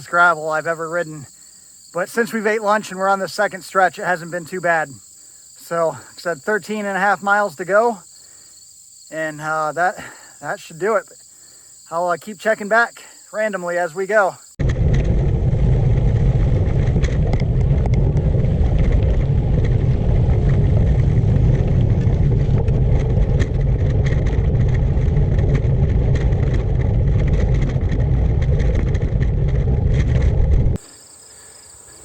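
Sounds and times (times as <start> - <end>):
wind rumble on microphone: 14.6 - 30.8
bike tyre noise on gravel: 14.6 - 32.0.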